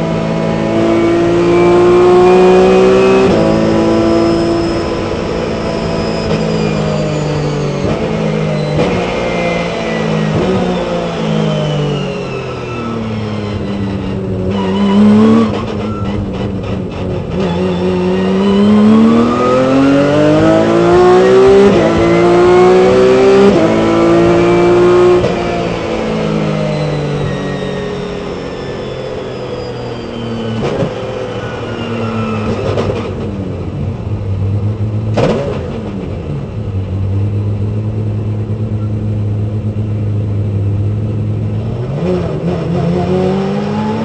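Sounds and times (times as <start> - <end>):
race car engine shifting gears: 0.7 - 10.8, 30.5 - 33.7, 35.0 - 36.6.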